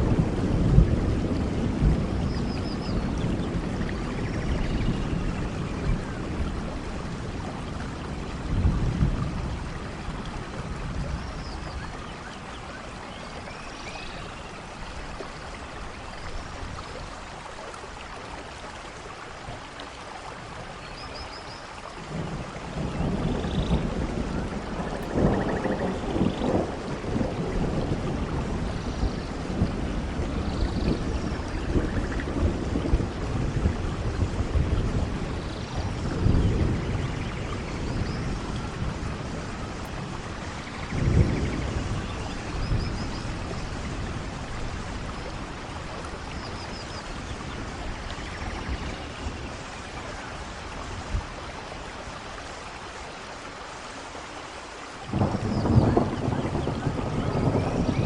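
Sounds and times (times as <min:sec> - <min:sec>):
thunder rolling: 0:00.0 - 0:11.2, 0:22.1 - 0:49.6, 0:55.1 - 0:58.0
steady rain falling: 0:00.0 - 0:58.0.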